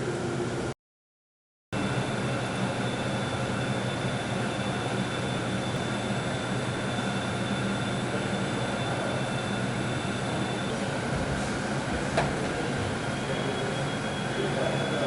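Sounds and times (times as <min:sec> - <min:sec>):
machine hum and hiss: 0:01.8 - 0:15.0.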